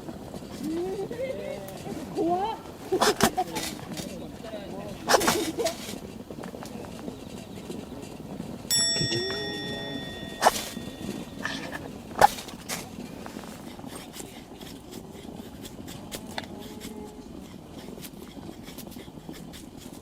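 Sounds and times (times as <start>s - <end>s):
campfire crackling: 0.0s - 20.0s
sharp clack: 8.7s - 12.4s.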